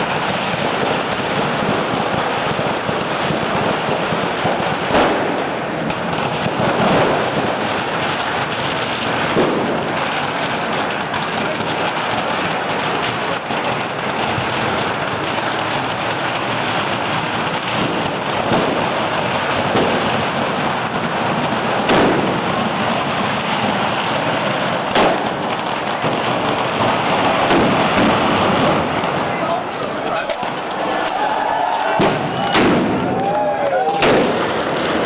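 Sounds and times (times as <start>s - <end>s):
bonfire crackling and rumbling: 0.0s - 35.0s
bangers going off: 17.6s - 35.0s.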